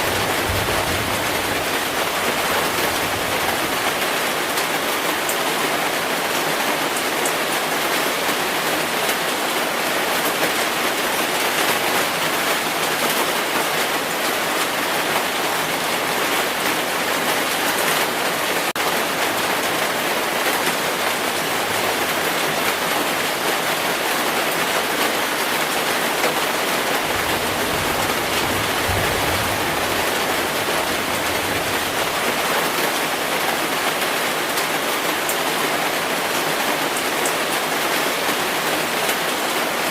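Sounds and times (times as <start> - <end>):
distant thunder rumble: 0.0 - 3.8, 27.0 - 32.2.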